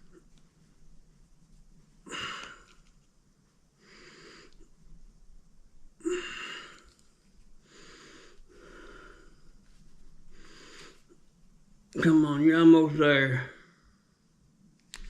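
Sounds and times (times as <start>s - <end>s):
man breathing hard: 2.0s - 2.8s, 6.0s - 7.0s, 7.6s - 9.6s, 10.3s - 11.2s.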